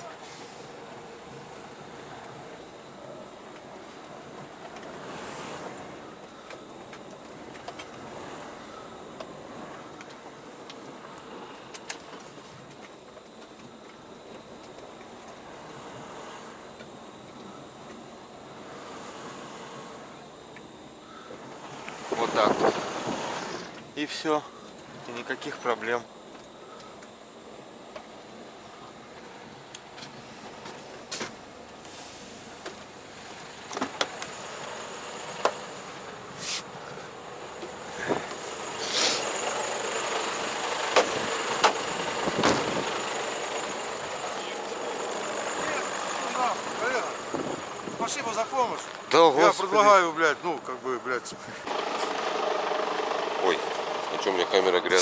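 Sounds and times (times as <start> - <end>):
steady background noise: 0.0 - 55.0
wind: 0.0 - 55.0
short hiss: 36.4 - 36.7, 38.8 - 39.4
vehicle running: 37.1 - 55.0
scattered clicks and knocks: 40.1 - 47.2.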